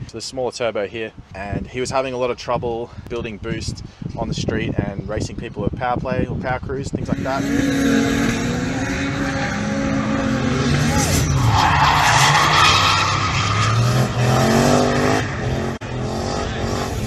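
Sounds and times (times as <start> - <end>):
car engine revving: 7.1 - 17.0.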